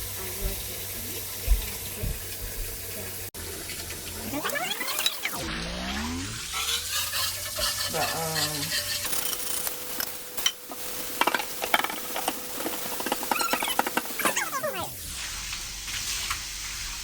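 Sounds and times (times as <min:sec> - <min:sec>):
food sizzling in a frying pan: 0:00.0 - 0:17.0
utensil scraping a pan: 0:06.5 - 0:09.7, 0:11.2 - 0:14.4.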